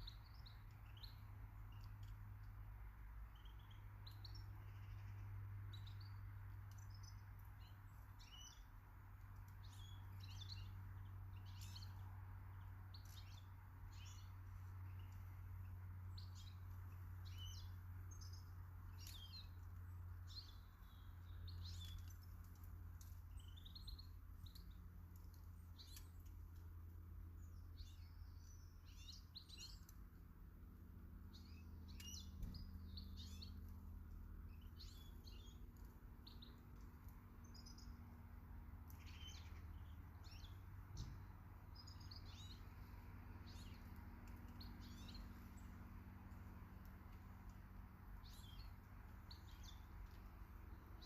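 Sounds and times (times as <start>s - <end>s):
low steady hum: 0.0s - 51.0s
small birds chirping and calling: 0.0s - 51.0s.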